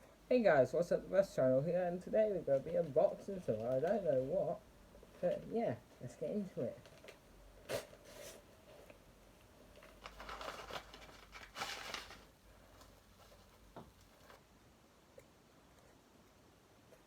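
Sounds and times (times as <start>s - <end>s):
packaging tearing and rustling: 9.7s - 14.4s.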